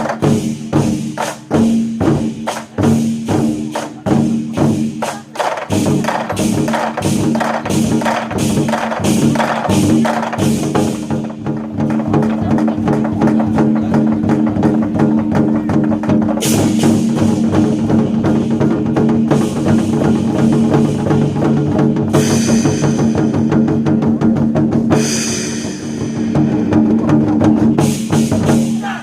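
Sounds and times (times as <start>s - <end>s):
war drums beaten fast: 0.0s - 29.0s
bright cymbal crashes: 22.2s - 23.6s, 25.0s - 26.7s.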